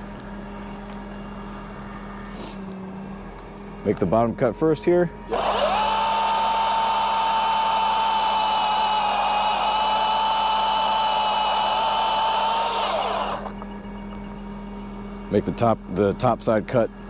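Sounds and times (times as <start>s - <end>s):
chainsaw cutting: 5.3s - 13.5s.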